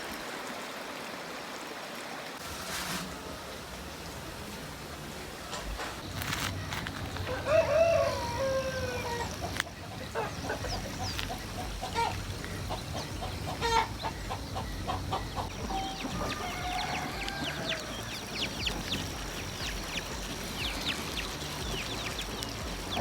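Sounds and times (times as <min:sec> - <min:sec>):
river rushing: 0:00.0 - 0:23.0
rooster crowing: 0:07.2 - 0:09.5, 0:15.1 - 0:18.3.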